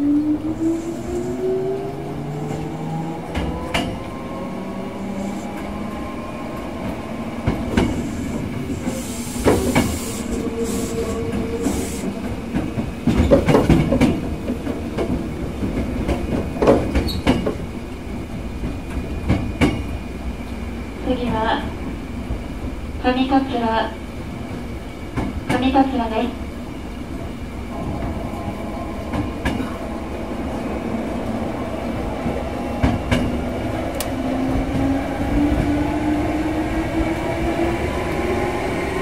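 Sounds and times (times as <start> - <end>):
train rolling noise: 0.0 - 39.0.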